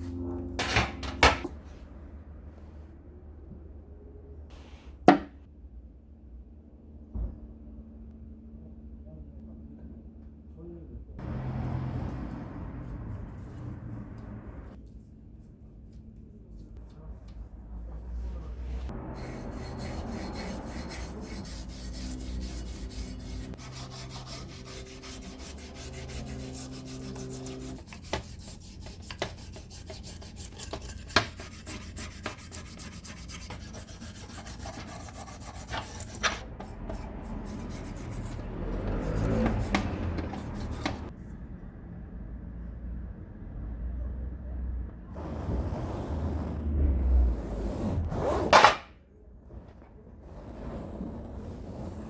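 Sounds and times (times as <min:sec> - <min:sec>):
steady low hum: 0:00.0 - 0:11.2
hand scraping rusty metal: 0:19.2 - 0:41.1.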